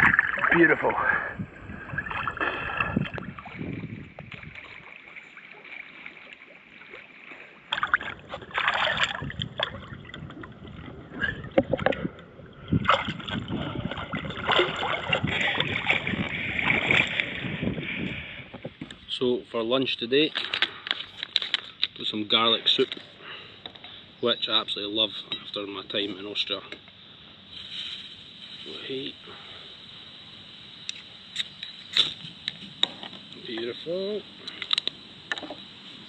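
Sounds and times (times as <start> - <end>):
water splashing around swimmer: 0.0 - 17.7.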